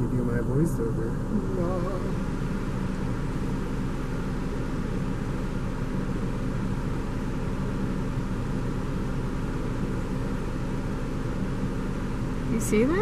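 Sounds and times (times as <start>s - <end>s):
constant hiss: 0.0s - 13.0s
low engine hum: 0.0s - 13.0s.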